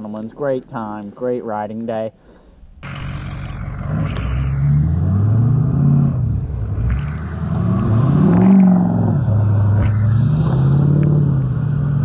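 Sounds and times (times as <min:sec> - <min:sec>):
pit bike engine revving: 0:02.8 - 0:12.0.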